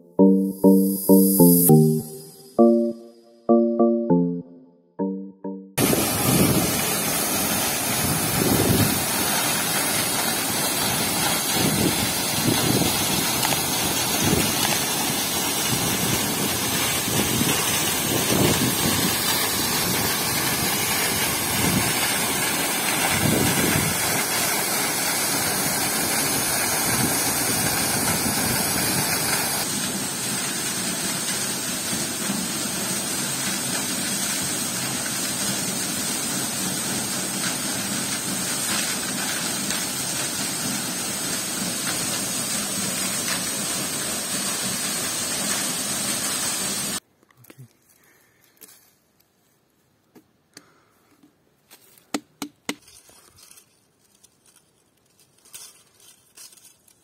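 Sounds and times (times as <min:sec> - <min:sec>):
wind buffeting microphone: 0:08.0 - 0:09.1, 0:17.0 - 0:19.2, 0:23.1 - 0:24.0.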